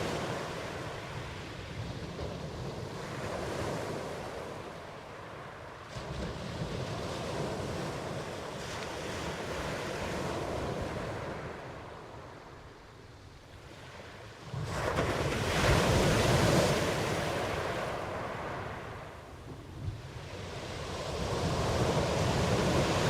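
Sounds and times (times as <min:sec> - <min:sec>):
ocean waves breaking: 0:00.0 - 0:12.6, 0:20.0 - 0:23.0.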